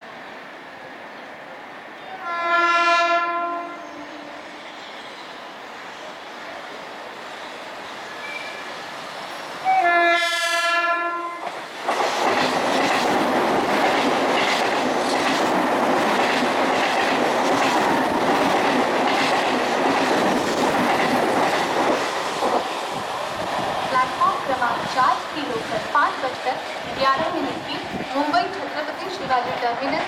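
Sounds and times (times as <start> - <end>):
train rushing past: 0.0 - 30.0
train horn blast: 2.1 - 4.5, 9.6 - 11.4.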